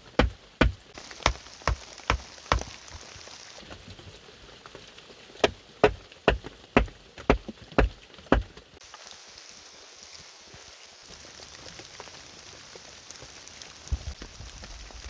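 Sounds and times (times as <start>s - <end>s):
tool striking wood: 0.0s - 3.1s, 5.4s - 8.6s
steady rain hissing: 0.0s - 15.0s.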